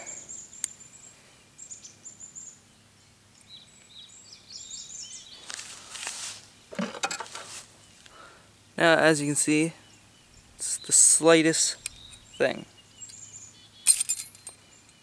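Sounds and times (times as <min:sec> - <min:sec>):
small birds chirping: 0:00.0 - 0:15.0
brief rustles: 0:05.4 - 0:07.7.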